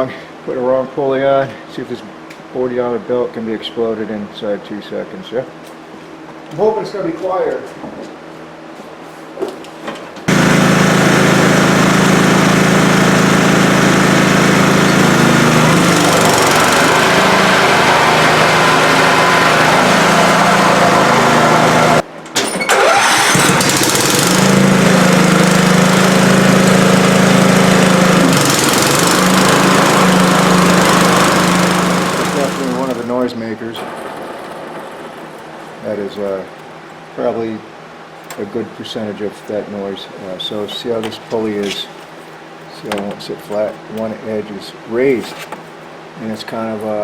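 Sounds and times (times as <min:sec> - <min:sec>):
riding mower engine running: 0:10.3 - 0:22.0, 0:22.6 - 0:36.0.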